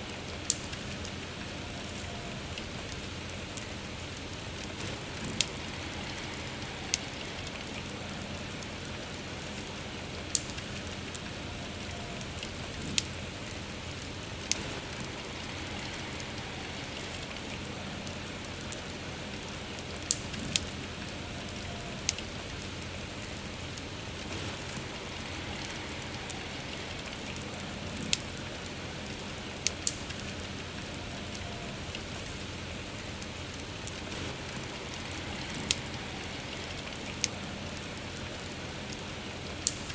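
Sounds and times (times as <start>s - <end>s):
steady soft rain: 0.0s - 39.9s
wood fire crackling: 0.0s - 39.9s.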